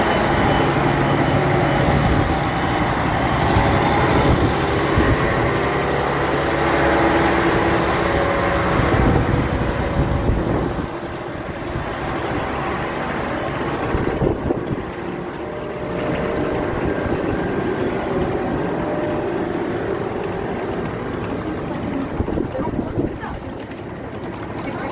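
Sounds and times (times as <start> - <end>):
diesel train engine running: 0.0 - 24.9.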